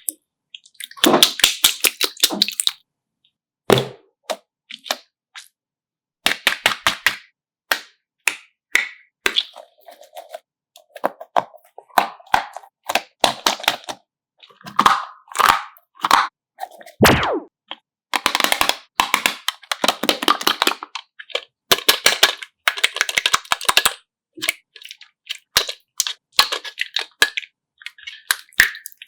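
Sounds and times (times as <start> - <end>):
slime bubbles popping: 17.0 - 17.5.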